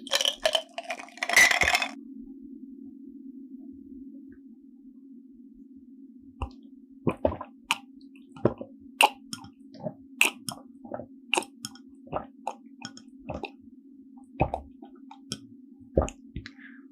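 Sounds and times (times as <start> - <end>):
steady low hum: 1.6 - 16.9
person chewing with wet squishes: 6.4 - 13.6, 14.3 - 16.2.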